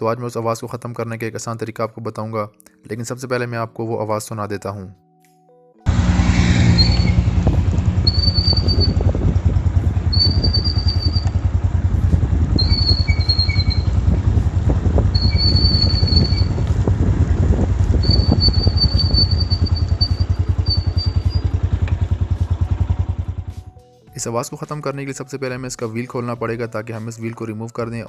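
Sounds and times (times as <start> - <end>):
motorcycle engine running: 5.9 - 23.8
drum brake squealing: 6.4 - 16.8, 17.8 - 21.8.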